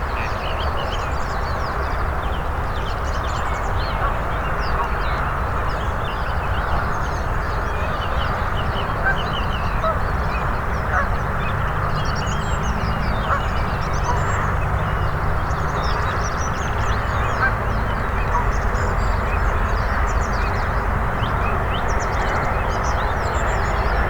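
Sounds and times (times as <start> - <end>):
small birds chirping and twittering: 0.0 - 24.0
ducks and geese calling: 7.9 - 14.8, 15.9 - 20.8.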